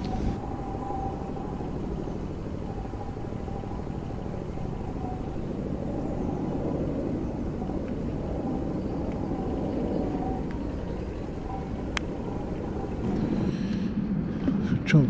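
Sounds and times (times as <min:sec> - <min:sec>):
electric motor whine: 0:00.0 - 0:00.8
steady low rumble: 0:00.0 - 0:15.0.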